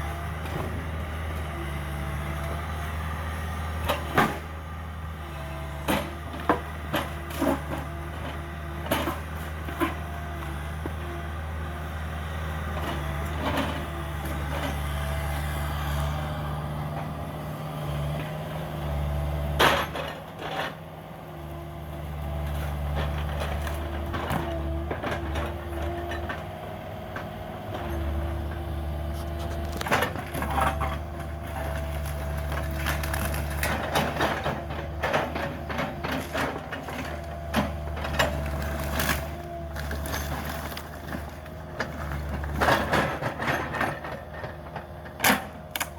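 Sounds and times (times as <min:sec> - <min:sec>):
excavator diesel engine running: 0:00.0 - 0:45.9
wood cracking and crunching: 0:29.2 - 0:34.2.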